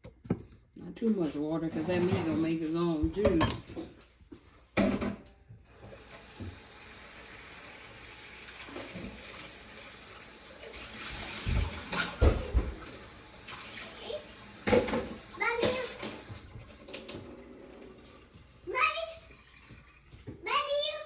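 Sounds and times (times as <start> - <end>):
kitchen tap running: 5.7 - 21.0.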